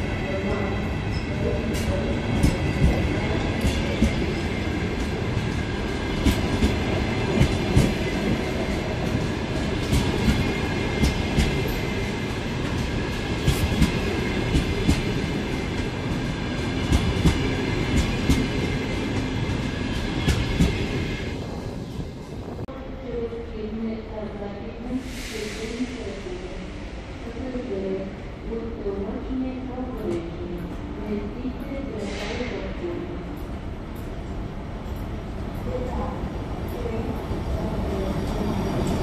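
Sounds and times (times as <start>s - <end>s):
train wheels rumbling and clacking: 0.0s - 22.7s.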